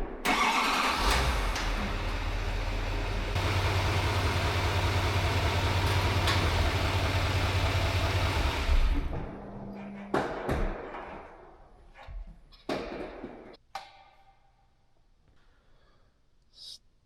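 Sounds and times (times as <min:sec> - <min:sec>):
motor humming and rushing: 0:01.1 - 0:09.2.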